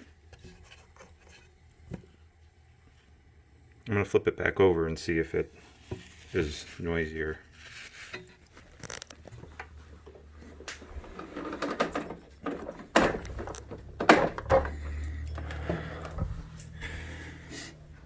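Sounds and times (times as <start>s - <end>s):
metallic rattle: 10.5s - 17.4s
rowing machine clunks and knocks: 10.8s - 16.5s.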